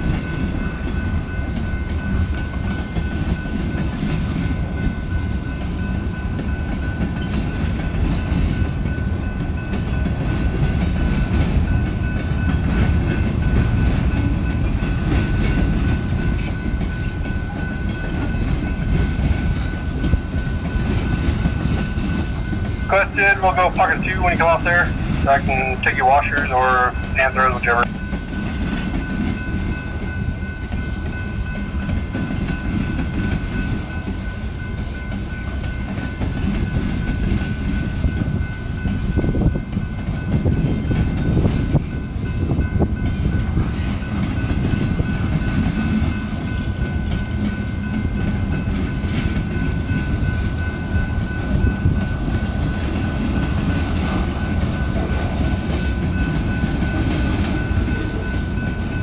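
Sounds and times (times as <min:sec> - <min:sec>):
steel wheels rumbling on rails: 0:00.0 - 0:59.0
steady high tone: 0:22.8 - 0:27.9.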